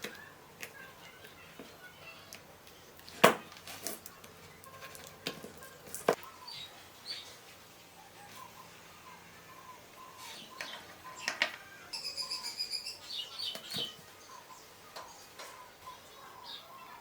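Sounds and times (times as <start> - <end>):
faint bird chirps: 8.0 - 17.0.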